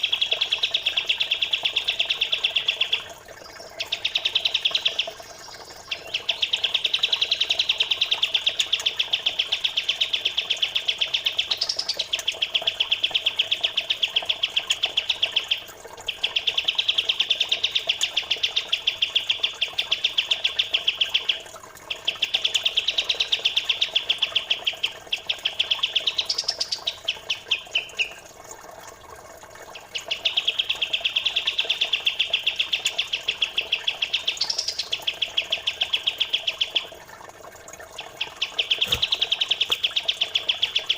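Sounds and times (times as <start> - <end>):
faint trickling water: 0.0 - 40.9
bird chirping in fast runs: 11.4 - 12.2, 38.1 - 40.9.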